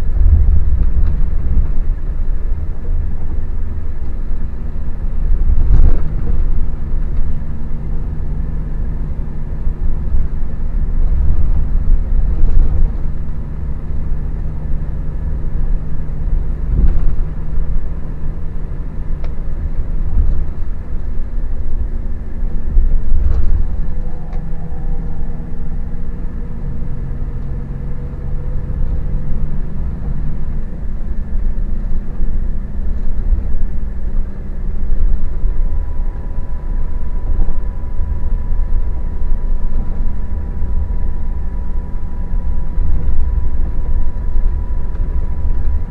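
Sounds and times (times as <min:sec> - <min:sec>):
diesel engine rumbling: 0:00.0 - 0:45.9.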